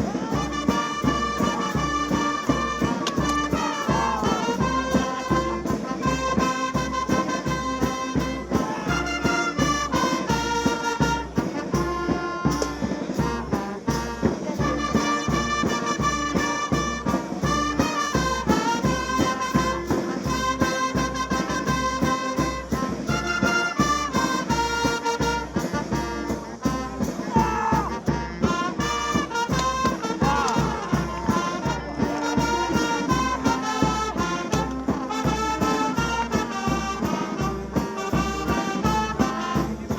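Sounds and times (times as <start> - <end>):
brass horns playing a melody: 0.0 - 39.9
steady drum beat: 0.0 - 39.9.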